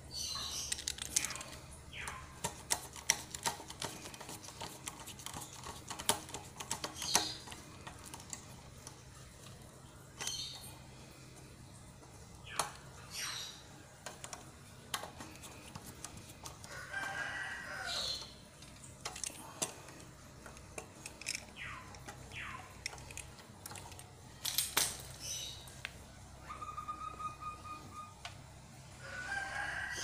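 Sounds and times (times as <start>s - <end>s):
birds calling: 0.0s - 4.6s, 5.3s - 8.3s, 9.8s - 14.4s, 21.2s - 24.0s, 25.0s - 28.3s.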